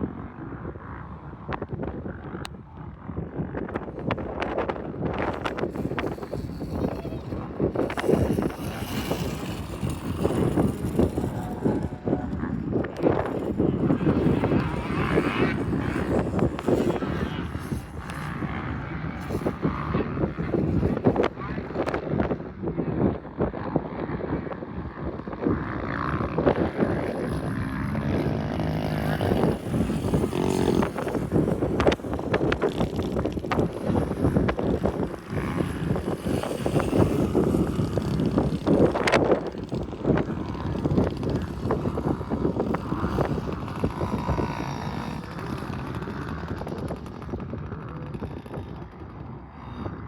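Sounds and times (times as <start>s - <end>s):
pit bike engine revving: 3.8s - 22.4s, 23.2s - 50.0s.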